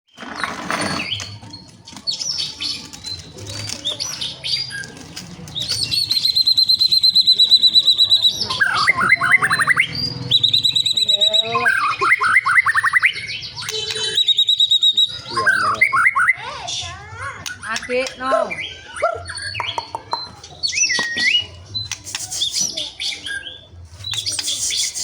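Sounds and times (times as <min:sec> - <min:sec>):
bird singing whistled phrases: 0:05.6 - 0:16.6, 0:17.5 - 0:25.0
rapid high bird trill: 0:05.6 - 0:16.9, 0:17.5 - 0:25.0.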